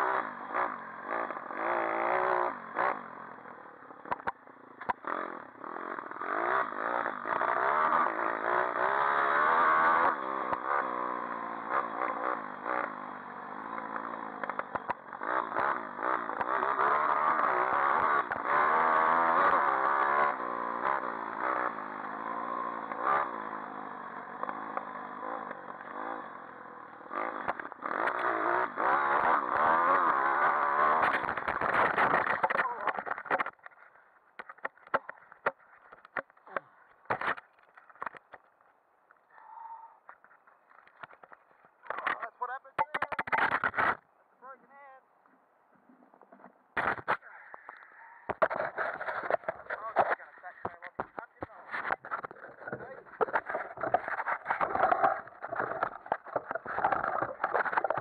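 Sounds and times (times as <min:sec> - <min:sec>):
motorbike engine revving: 0:00.0 - 0:33.8, 0:48.3 - 0:58.0.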